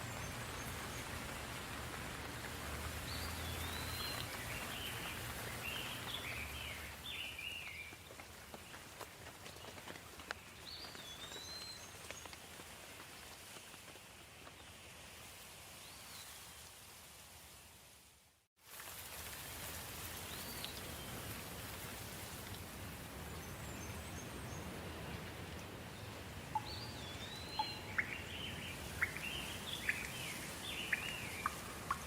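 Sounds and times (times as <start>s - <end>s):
gentle rain: 0.0s - 32.0s
bird chirping: 26.5s - 32.0s
water drops: 30.9s - 32.0s.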